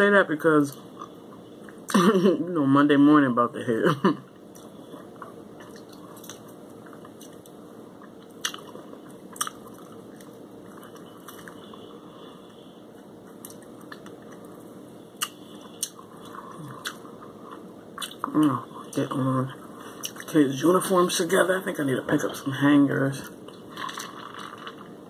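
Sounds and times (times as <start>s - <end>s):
person chewing: 4.4s - 19.0s, 19.8s - 20.3s
sharp mouth clicks: 15.2s - 17.1s.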